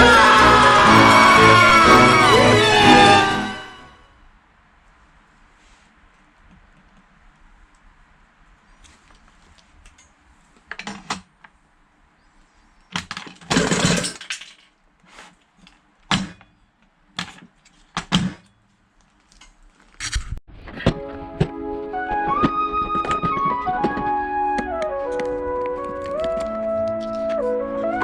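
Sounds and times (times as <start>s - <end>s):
background music: 0.0s - 4.0s, 20.7s - 28.0s
knocks and clatters: 13.0s - 14.7s.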